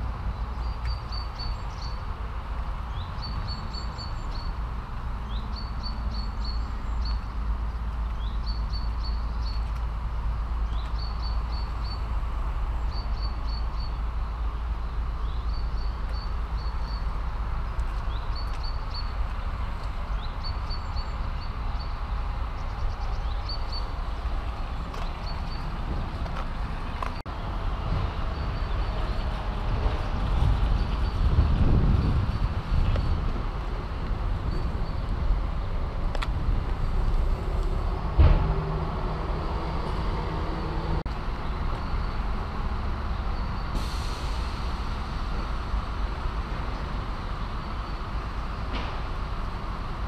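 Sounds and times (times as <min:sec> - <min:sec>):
small bird singing: 0:00.3 - 0:02.1, 0:02.9 - 0:04.6, 0:05.2 - 0:09.8, 0:10.6 - 0:17.1, 0:18.0 - 0:25.8.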